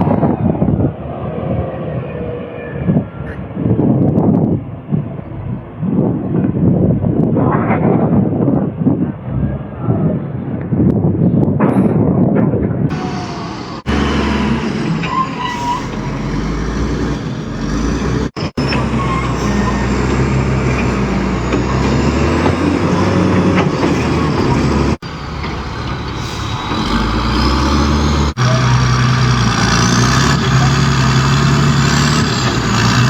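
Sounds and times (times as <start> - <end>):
heavy truck diesel engines: 12.9 - 33.0.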